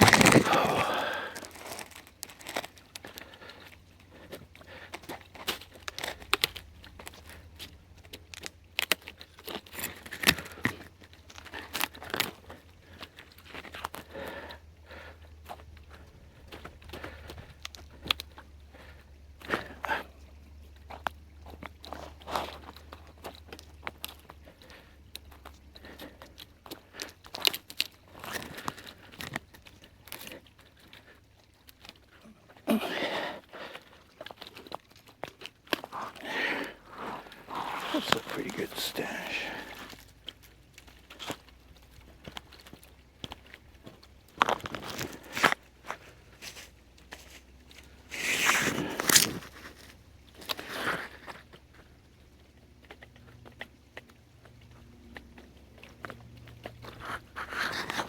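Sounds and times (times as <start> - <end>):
brush rustling: 0.0 - 2.8, 35.8 - 40.0, 44.8 - 50.0
bark tearing: 0.0 - 4.2, 32.6 - 42.8, 48.1 - 51.5, 55.1 - 58.0
twigs snapping: 0.0 - 14.0, 32.6 - 51.4.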